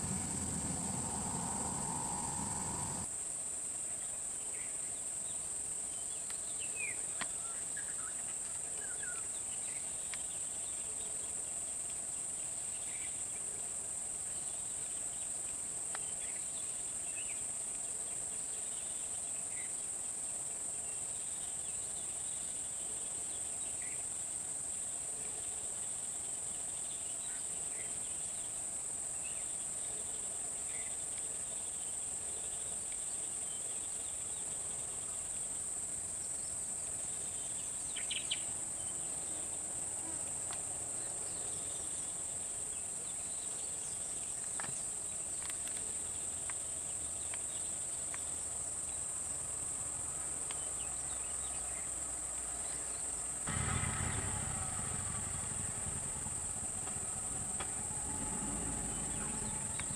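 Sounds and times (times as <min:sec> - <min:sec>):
low rumble: 0:00.0 - 0:03.1, 0:53.5 - 0:59.9
shrill insect chorus: 0:00.0 - 0:03.2, 0:15.9 - 0:59.9.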